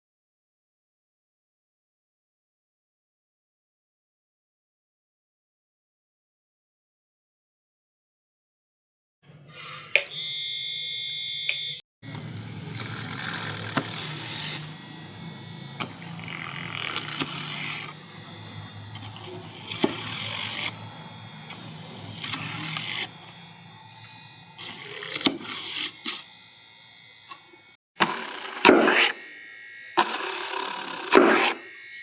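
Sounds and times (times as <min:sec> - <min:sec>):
small electric drill motor running: 0:10.1 - 0:32.0.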